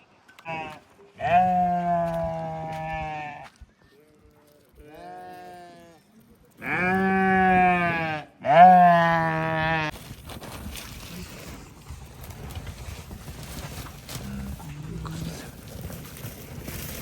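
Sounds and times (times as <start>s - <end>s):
sheep or goats bleating: 0.4s - 3.6s, 4.8s - 10.0s.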